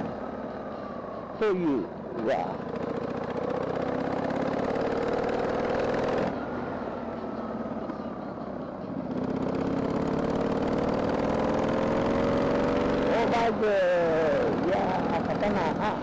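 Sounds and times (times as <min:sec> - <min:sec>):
motorcycle engine accelerating: 0:02.2 - 0:06.4, 0:09.0 - 0:16.0.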